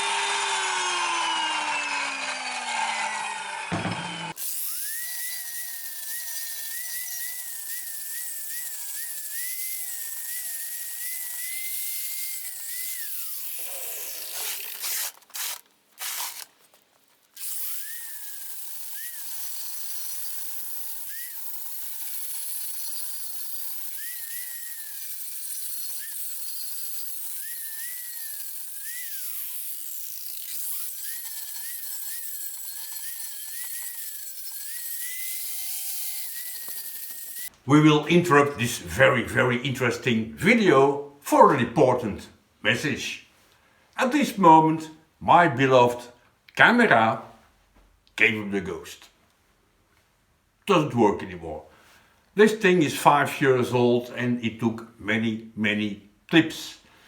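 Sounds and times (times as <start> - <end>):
angle grinder on steel: 0.0 - 16.5, 17.4 - 37.5.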